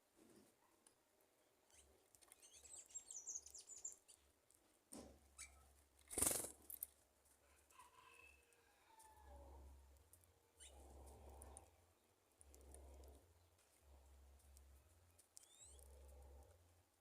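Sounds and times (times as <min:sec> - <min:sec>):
small birds chirping: 0:01.6 - 0:04.4, 0:05.2 - 0:06.8, 0:10.1 - 0:16.7.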